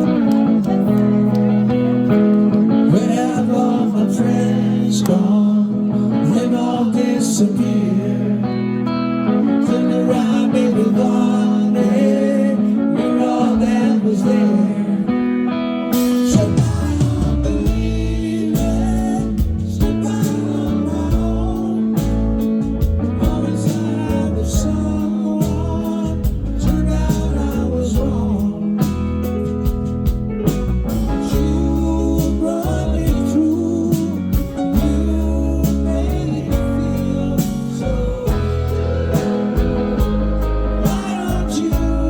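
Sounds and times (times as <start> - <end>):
person singing lead vocal: 0.0 - 29.8, 31.0 - 42.0
guitars: 0.0 - 42.0
steady drum beat: 16.0 - 32.3, 34.0 - 42.0.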